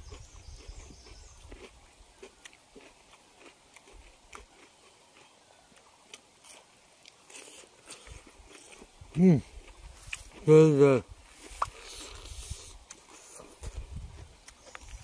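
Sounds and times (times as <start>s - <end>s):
people chewing food: 0.0s - 15.0s.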